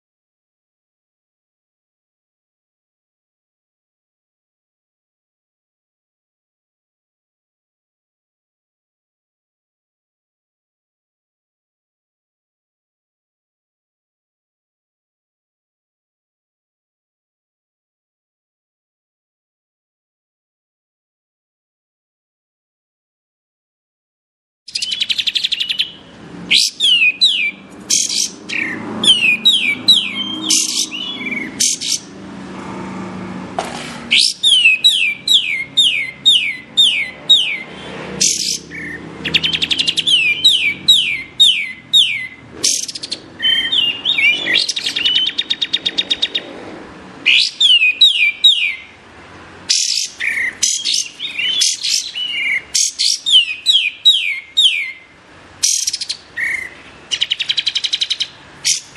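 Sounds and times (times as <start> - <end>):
songbird whistling: 24.7 - 32.1, 34.1 - 46.5, 47.3 - 48.9, 49.7 - 58.9
fast buzzy bird trill: 24.7 - 32.2, 34.1 - 46.5, 49.7 - 55.0, 55.6 - 58.9.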